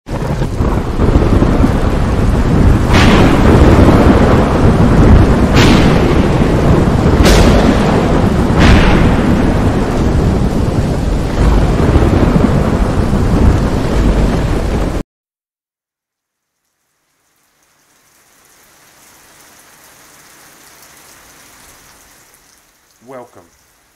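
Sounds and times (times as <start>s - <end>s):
rumbling thunder: 0.1s - 15.0s
sharp thunder cracks: 0.1s - 15.0s
steady rain: 0.1s - 15.0s, 16.1s - 23.9s.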